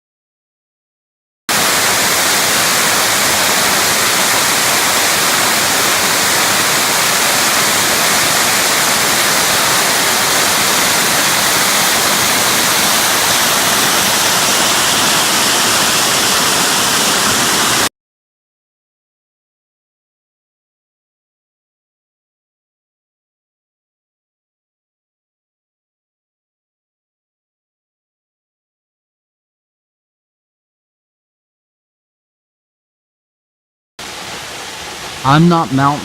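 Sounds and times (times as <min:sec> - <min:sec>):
waterfall rushing: 0:01.5 - 0:17.9, 0:34.0 - 0:36.0.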